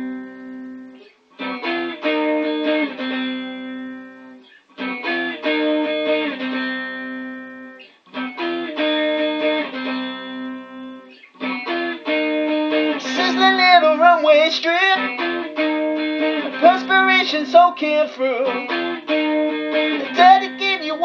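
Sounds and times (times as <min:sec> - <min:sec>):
guitar strumming chords: 0:00.0 - 0:21.0.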